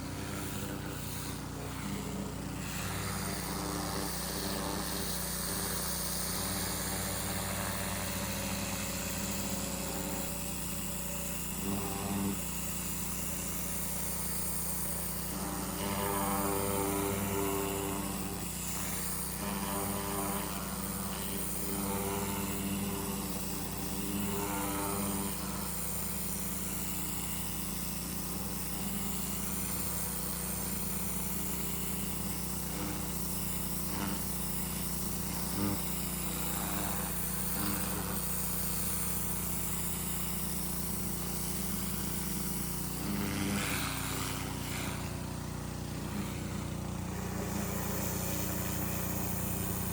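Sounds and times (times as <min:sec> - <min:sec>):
lawn mower engine running: 0:00.0 - 0:11.3, 0:38.6 - 0:49.9.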